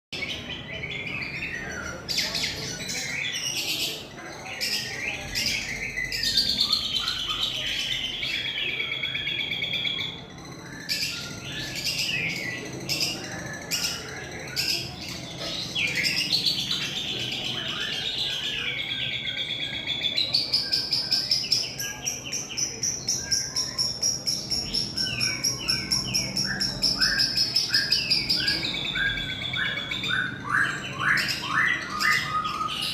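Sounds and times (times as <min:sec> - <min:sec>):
bird singing chattering trill: 0:00.2 - 0:32.9.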